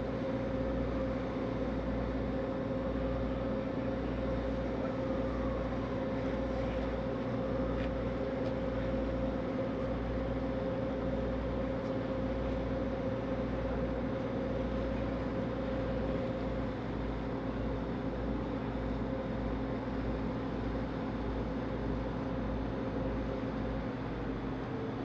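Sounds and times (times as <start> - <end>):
ferry engines droning: 0.0 - 25.0.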